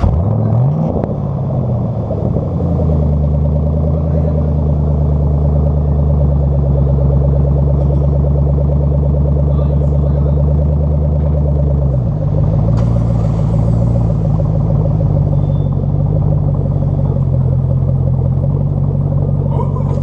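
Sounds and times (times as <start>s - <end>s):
car exhaust running: 0.0s - 20.0s.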